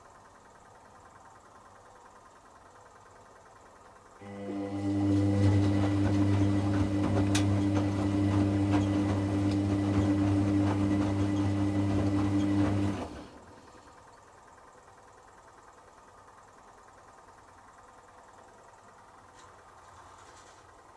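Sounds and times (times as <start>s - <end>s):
washing machine motor humming: 1.0s - 15.8s
water and laundry sloshing: 5.0s - 13.4s.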